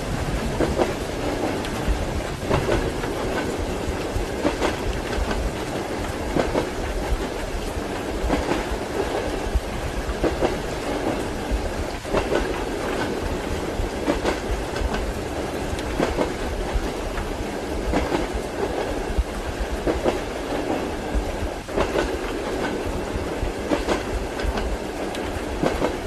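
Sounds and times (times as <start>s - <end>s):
railway carriage rolling rumble: 0.0s - 26.0s
train wheels clicking over rail joints: 0.1s - 26.0s.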